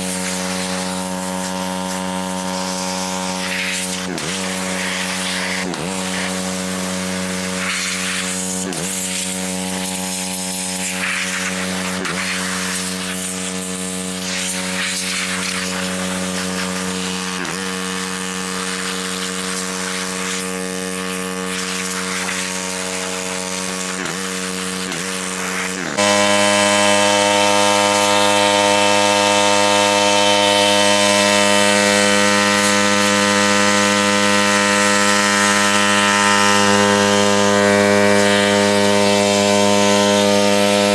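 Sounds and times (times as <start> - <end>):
pressure washer engine running: 0.0 - 40.9.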